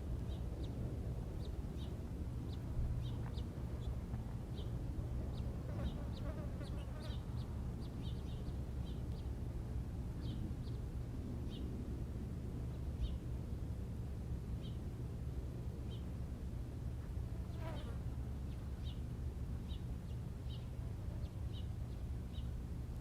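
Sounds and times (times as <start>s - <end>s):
steady low rumble: 0.0s - 5.8s
small birds chirping: 1.4s - 9.4s, 17.5s - 22.6s.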